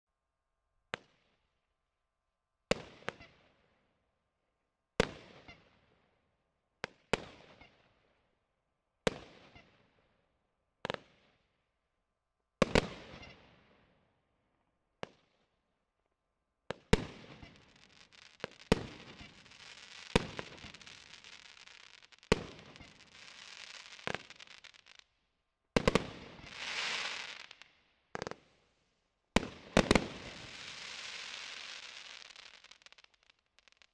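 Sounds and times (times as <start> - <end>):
fireworks crackling: 17.0 - 25.2, 25.8 - 28.6, 29.4 - 33.9.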